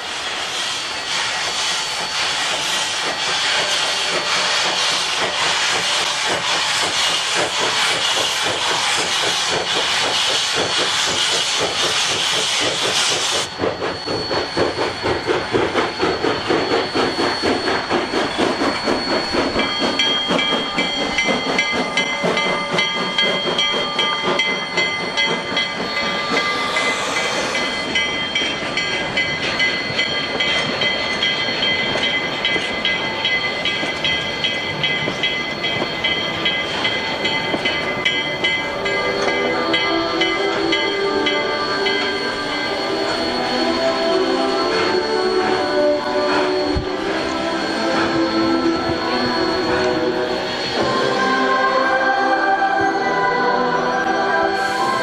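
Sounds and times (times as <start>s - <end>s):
steam hissing: 0.0s - 52.8s, 53.5s - 55.0s
rhythmic pulsing of train moving: 0.0s - 55.0s
high ringing tones: 13.4s - 55.0s.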